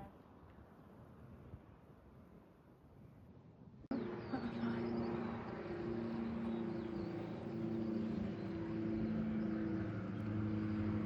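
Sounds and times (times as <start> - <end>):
engine drone: 3.9 - 11.0.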